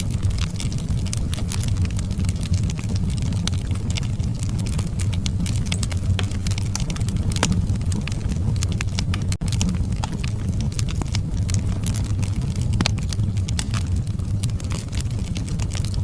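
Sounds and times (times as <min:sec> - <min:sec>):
fire crackling and popping: 0:00.0 - 0:16.0
low rumble of flame: 0:00.0 - 0:16.0.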